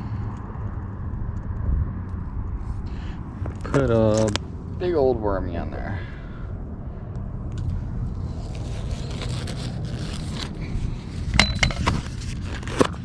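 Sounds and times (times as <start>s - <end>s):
steady low rumble: 0.0s - 13.0s
rustling and scraping handling noise: 8.4s - 13.0s.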